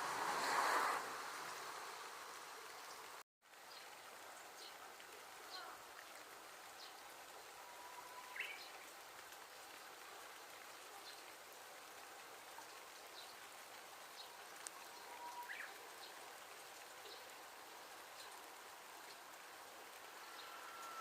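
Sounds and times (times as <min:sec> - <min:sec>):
rain and running water: 0:00.0 - 0:21.0.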